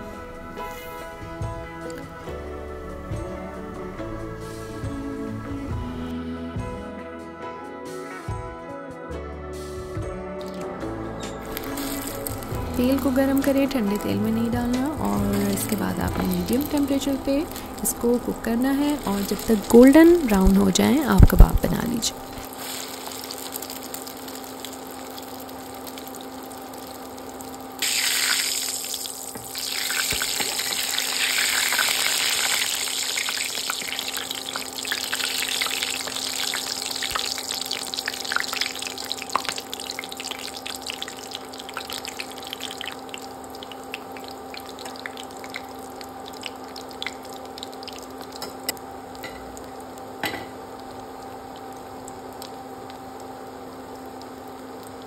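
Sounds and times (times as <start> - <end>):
steady low hum: 10.8 - 55.0
food frying in hot oil: 11.4 - 55.0.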